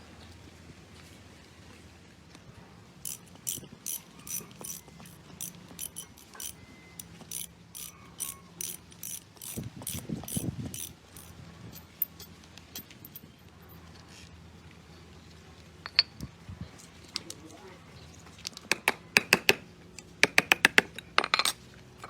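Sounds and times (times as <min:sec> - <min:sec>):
ratchet-like mechanical clicking: 0:03.0 - 0:12.9.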